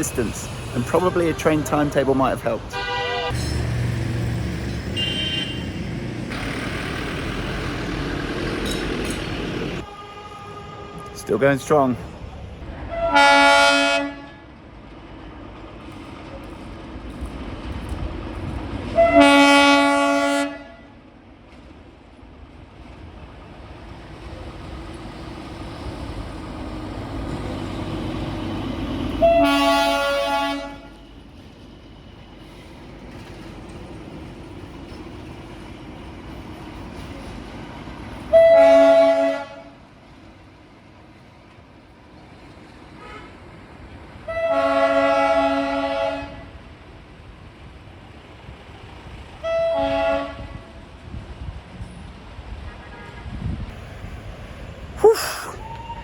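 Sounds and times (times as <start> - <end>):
train running rumble: 0.0 - 20.5, 21.1 - 55.0
train horn blasts: 2.7 - 3.5, 5.0 - 5.8, 9.8 - 11.5, 12.7 - 14.5, 19.0 - 20.9, 29.2 - 31.0, 38.3 - 39.8, 43.0 - 43.4, 44.2 - 46.6, 49.4 - 50.8.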